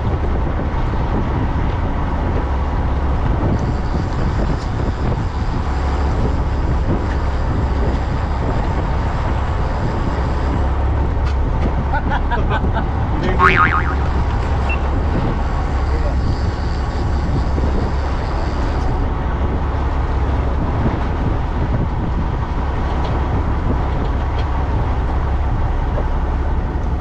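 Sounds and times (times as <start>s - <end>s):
boat engine running: 0.0s - 27.0s
broad rushing noise: 12.7s - 15.9s.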